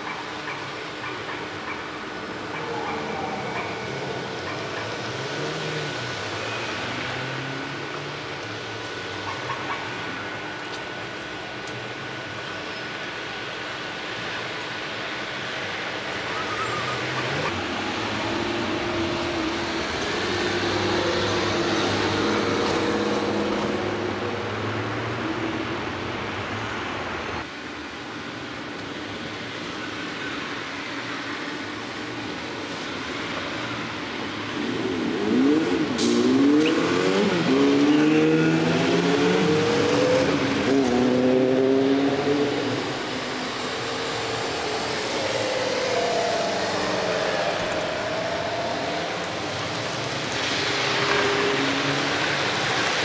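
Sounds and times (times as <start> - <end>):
vehicle engines running: 33.2 - 53.0.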